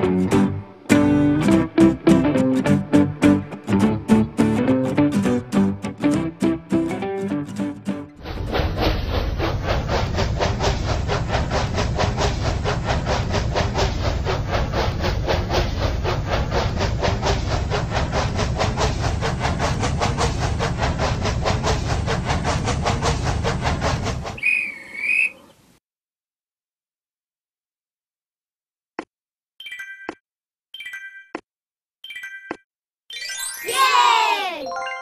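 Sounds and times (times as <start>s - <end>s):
toy steam train chuffing: 8.2s - 25.5s
short train whistle: 24.4s - 25.4s.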